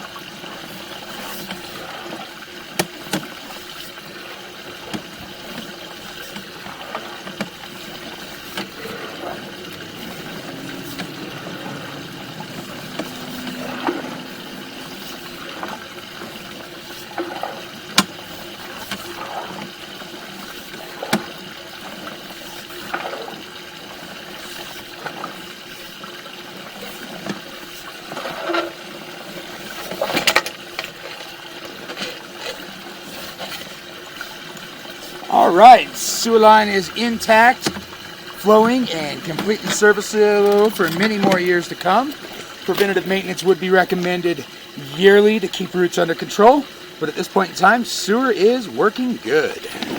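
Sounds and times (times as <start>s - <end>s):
water running and splashing in sewer: 0.0s - 49.9s
scattered clicks and knocks: 36.8s - 43.2s.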